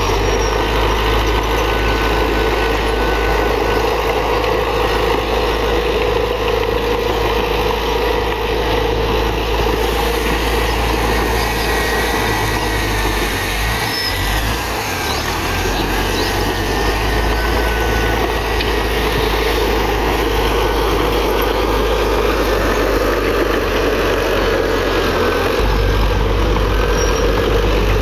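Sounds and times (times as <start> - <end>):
diesel engine rumbling: 0.0 - 28.0.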